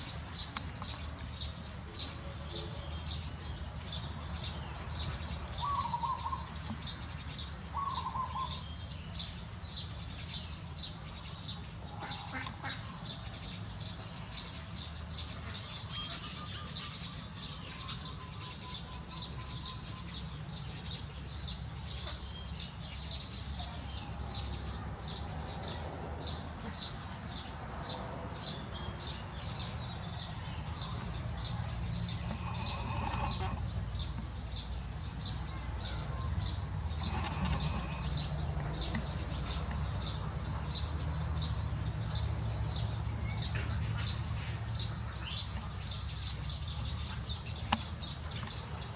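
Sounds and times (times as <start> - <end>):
baby birds chirping: 9.9 - 48.9.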